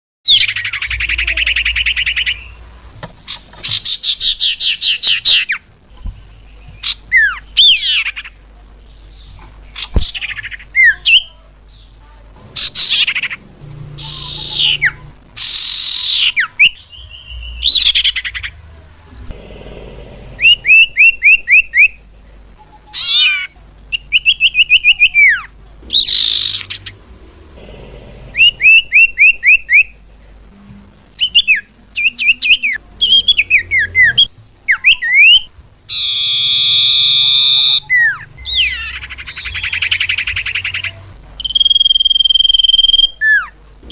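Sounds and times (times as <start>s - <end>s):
harsh buzzy bird call: 12.5s - 18.6s, 19.4s - 22.0s, 22.9s - 30.0s, 31.2s - 43.9s
fast bird trills: 20.4s - 21.9s, 28.3s - 29.9s
bird chirps and whistles: 20.4s - 22.0s, 28.4s - 29.9s, 31.2s - 40.8s, 41.4s - 43.5s.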